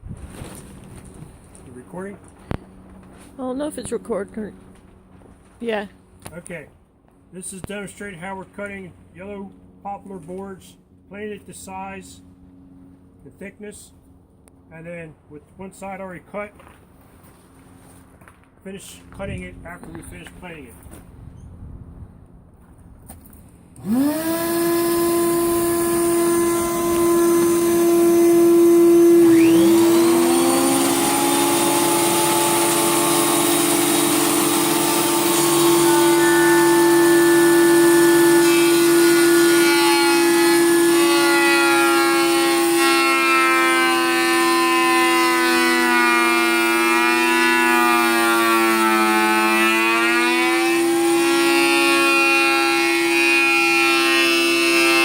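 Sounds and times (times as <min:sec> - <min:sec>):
second motor starting: 0:23.8 - 0:55.0
woodworking machine whine: 0:23.8 - 0:55.0.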